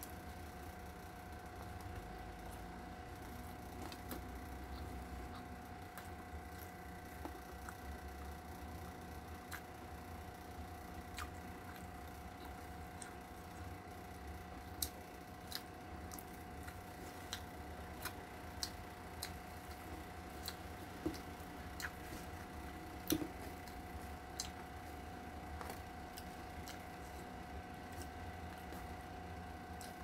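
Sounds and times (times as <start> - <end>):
faint hum: 0.0 - 30.0
person chewing with wet smacks: 3.5 - 8.0, 9.2 - 9.9, 11.0 - 13.8, 14.6 - 30.0.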